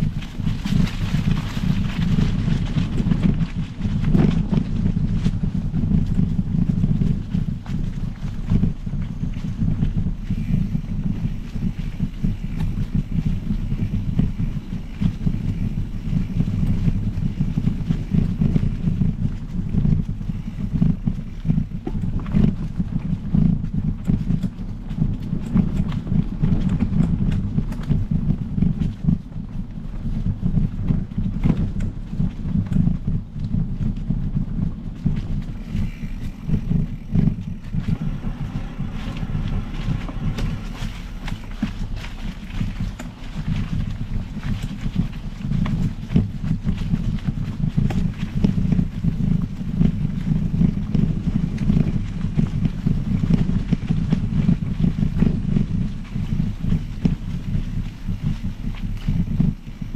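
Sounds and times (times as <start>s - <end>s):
bike clicks and rattles: 0.0s - 59.9s
wind buffeting microphone: 0.0s - 59.9s.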